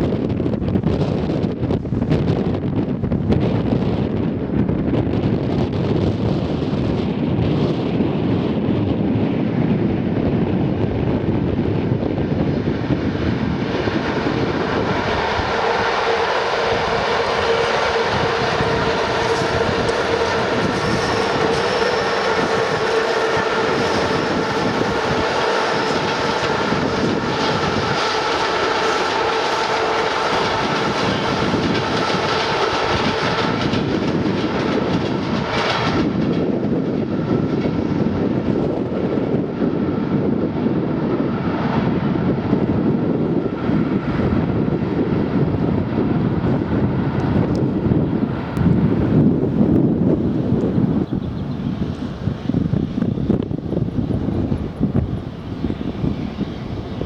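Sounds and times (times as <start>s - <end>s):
steady whining tone: 11.6s - 57.0s.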